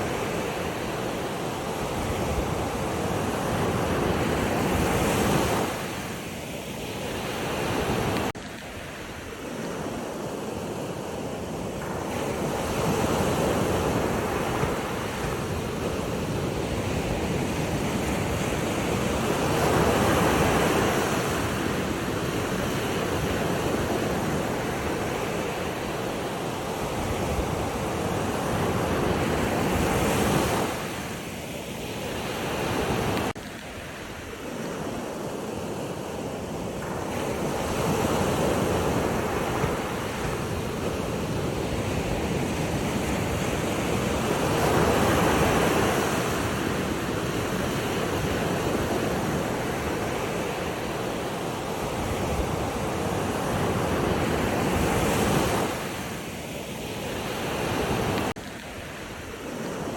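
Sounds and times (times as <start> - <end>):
waves washing onto shore: 0.0 - 59.9.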